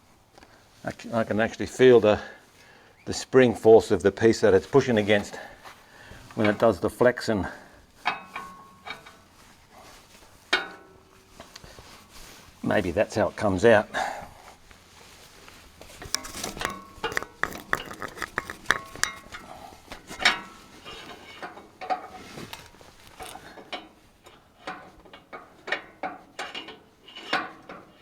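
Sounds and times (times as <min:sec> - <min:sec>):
metallic clinks and knocks: 0:16.0 - 0:20.5.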